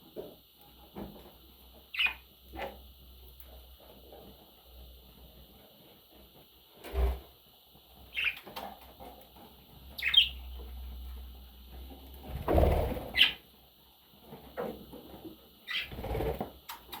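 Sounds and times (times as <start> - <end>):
budgerigar chirping: 10.0 - 10.4.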